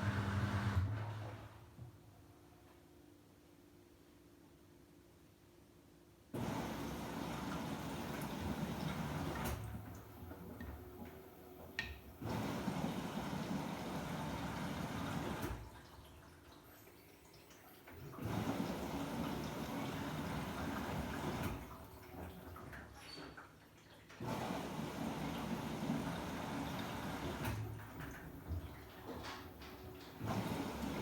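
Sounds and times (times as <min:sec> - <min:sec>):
water sloshing in washing machine: 0:00.0 - 0:01.8, 0:06.4 - 0:31.0.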